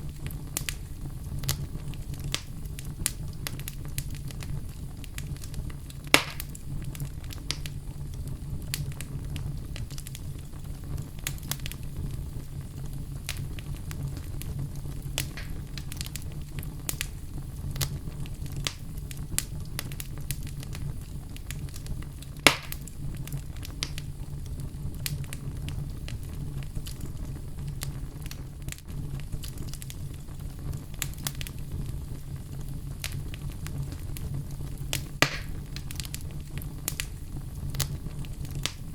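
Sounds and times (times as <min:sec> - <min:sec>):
loud fire pops: 0:00.0 - 0:38.9
wood fire crackling: 0:00.0 - 0:38.9.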